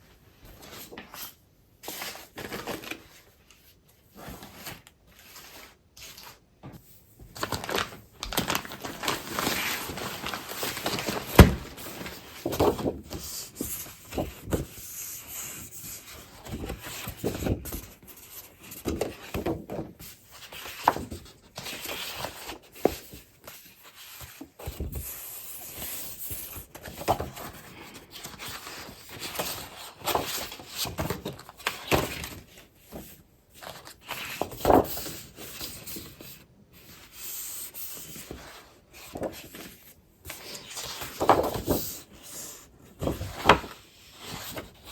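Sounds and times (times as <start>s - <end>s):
rustling paper and packaging: 7.2s - 14.8s.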